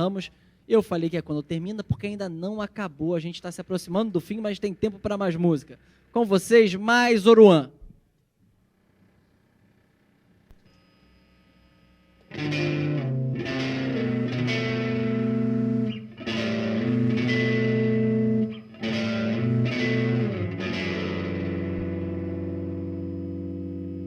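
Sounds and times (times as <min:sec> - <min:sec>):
electric guitar playing slow chords: 0:12.2 - 0:24.0.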